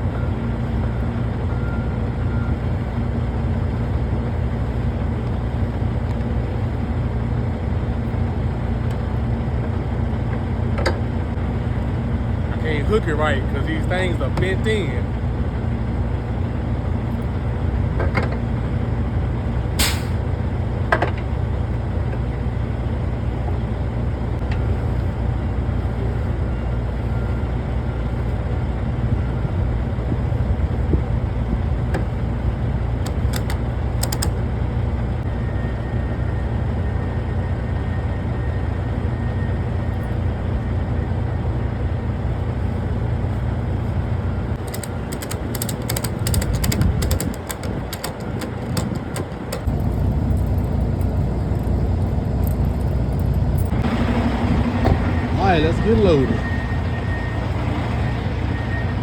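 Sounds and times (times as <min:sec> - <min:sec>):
diesel truck engine idling: 0:00.0 - 0:35.3, 0:35.9 - 0:59.0
metallic clank: 0:19.8 - 0:20.2.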